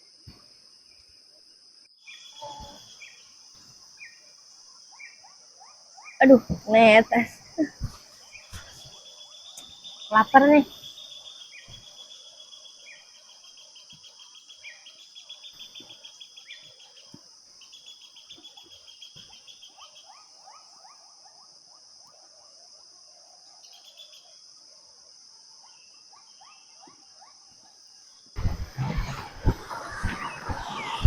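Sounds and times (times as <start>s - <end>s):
high insect drone: 0.0s - 31.0s
pulsed cricket trill: 2.0s - 21.5s, 28.4s - 31.0s
short low bird calls: 2.1s - 3.2s, 28.4s - 31.0s.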